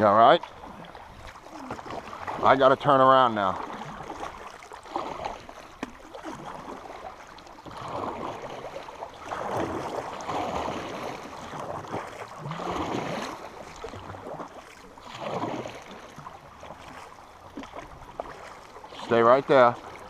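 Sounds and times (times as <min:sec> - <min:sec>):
paddle strokes splashing: 0:00.0 - 0:20.0
creek current rushing: 0:18.8 - 0:20.0.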